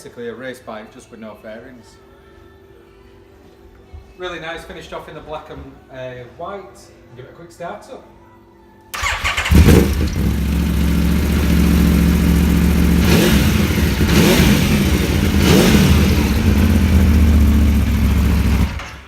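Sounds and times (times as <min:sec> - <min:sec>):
motorcycle engine idling: 0:09.0 - 0:19.0.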